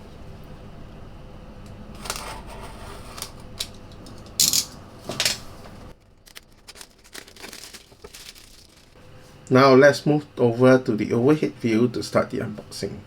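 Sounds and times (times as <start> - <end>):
box unwrapping clicks and rustles: 6.1 - 9.0
wrapping ripping: 6.2 - 9.0.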